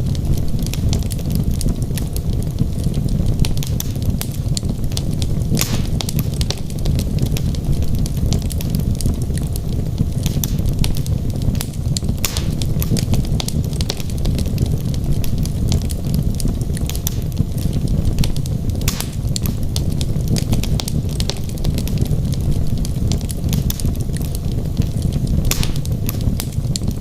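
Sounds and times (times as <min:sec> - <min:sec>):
wood fire crackling and popping: 0:00.0 - 0:27.0.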